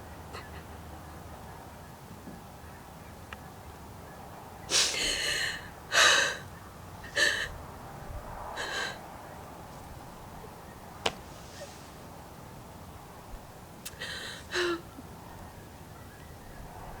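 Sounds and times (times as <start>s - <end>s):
woman sobbing with joy: 4.8s - 7.5s, 8.6s - 9.0s, 14.0s - 14.9s.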